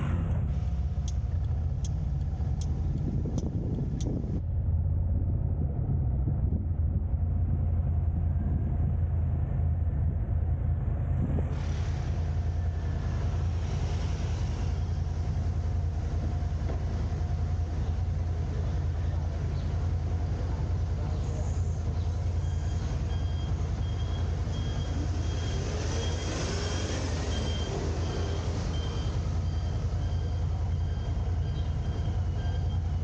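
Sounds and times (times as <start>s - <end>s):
car engine and road noise: 0.0s - 33.0s
evenly spaced ticks: 1.0s - 4.2s.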